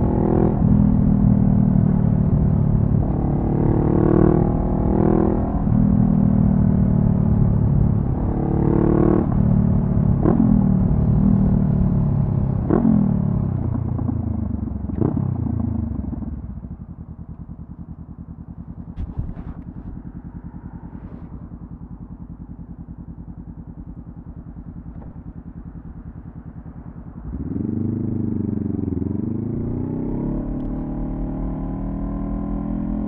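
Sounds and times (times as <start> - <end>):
motorcycle engine revving: 0.0 - 33.0
motorcycle engine idling: 13.6 - 29.5
motorcycle throttle blips: 13.6 - 31.0.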